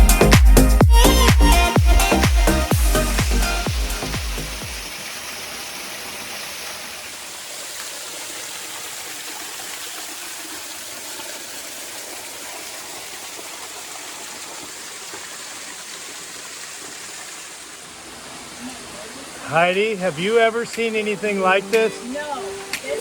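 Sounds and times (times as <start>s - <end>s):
waterfall into rock pool: 2.7s - 23.0s.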